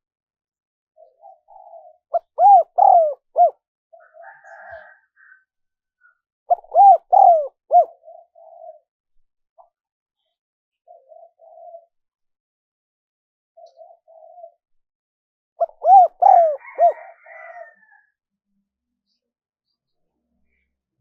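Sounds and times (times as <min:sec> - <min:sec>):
dove cooing: 0:01.0 - 0:05.1, 0:06.5 - 0:08.9, 0:10.8 - 0:12.0, 0:13.6 - 0:14.6, 0:15.6 - 0:17.8.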